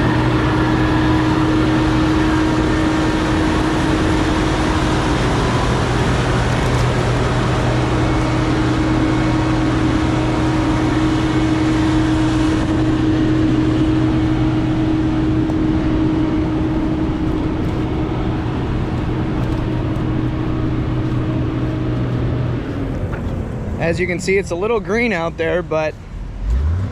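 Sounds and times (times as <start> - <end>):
farm machine engine droning: 0.0 - 26.9.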